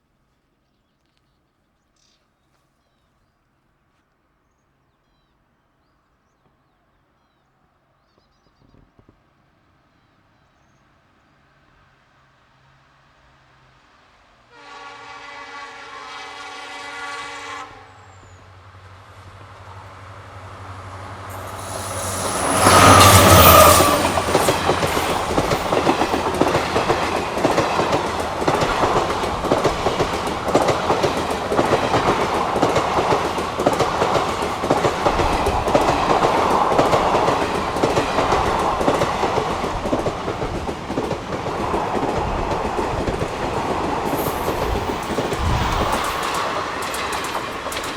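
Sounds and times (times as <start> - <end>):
locomotive horn blast: 14.5 - 18.1, 21.3 - 25.4
train rushing past: 14.5 - 47.9
coaches clicking over rail joints: 19.4 - 47.9.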